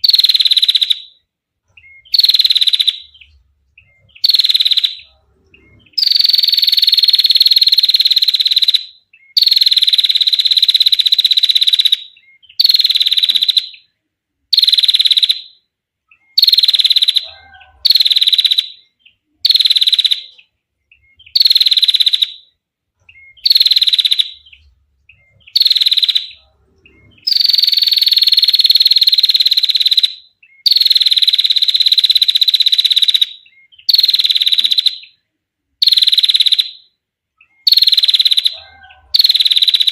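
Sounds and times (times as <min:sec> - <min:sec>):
bird rattling trill: 0:27.2 - 0:30.1, 0:37.7 - 0:39.9.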